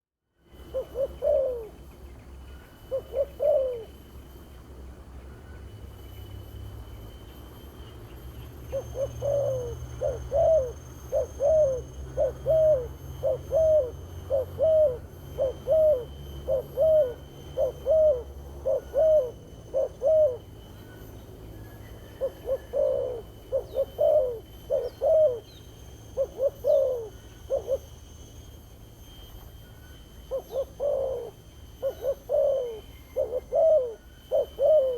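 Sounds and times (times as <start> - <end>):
dove cooing: 0.5 - 4.2, 8.6 - 28.1, 30.2 - 34.9.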